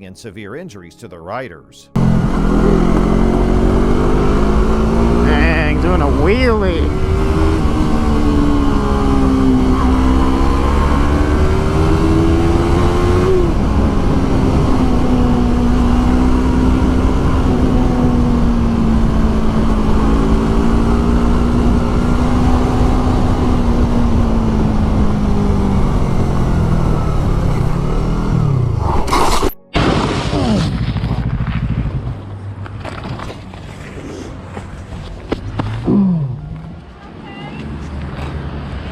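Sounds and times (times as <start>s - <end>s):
motorcycle engine running: 2.0s - 28.8s, 30.4s - 33.4s.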